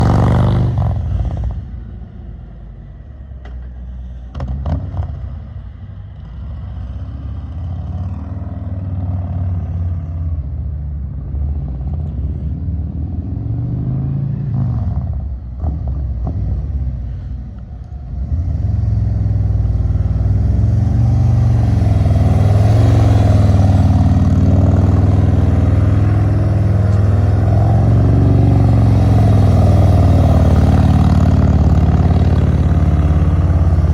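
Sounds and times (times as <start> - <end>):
motorcycle engine revving: 0.0 - 1.7, 18.3 - 33.9.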